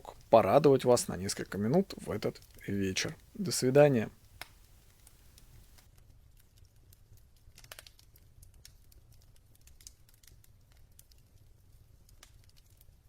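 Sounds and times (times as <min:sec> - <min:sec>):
small irregular clicks: 0:00.0 - 0:03.4, 0:04.2 - 0:13.0.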